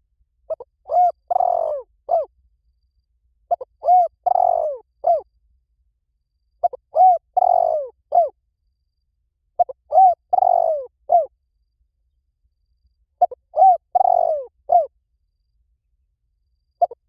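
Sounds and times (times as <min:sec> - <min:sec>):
dove cooing: 0:00.5 - 0:02.3, 0:03.5 - 0:05.2, 0:06.6 - 0:08.4, 0:09.6 - 0:11.3, 0:13.2 - 0:14.9, 0:16.8 - 0:17.0.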